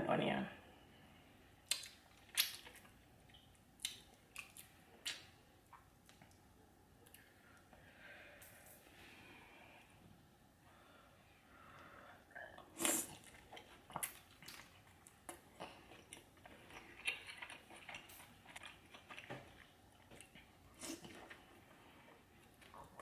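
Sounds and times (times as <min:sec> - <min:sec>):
person chewing food: 0:01.6 - 0:06.4, 0:12.3 - 0:23.0
wet mouth clicks and crunches: 0:01.7 - 0:05.3.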